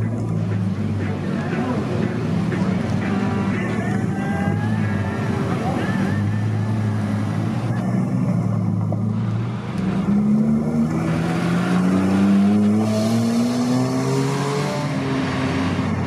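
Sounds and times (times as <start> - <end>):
car engine accelerating: 5.6 - 16.0.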